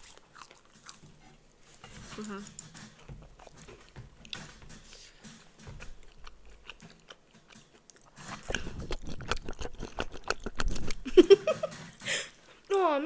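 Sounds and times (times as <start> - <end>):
crunchy biting and chewing: 0.0 - 4.6, 5.3 - 11.1.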